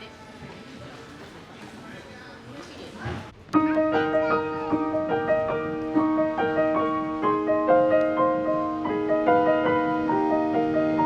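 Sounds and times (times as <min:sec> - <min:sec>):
gentle piano melody: 0:03.6 - 0:11.0.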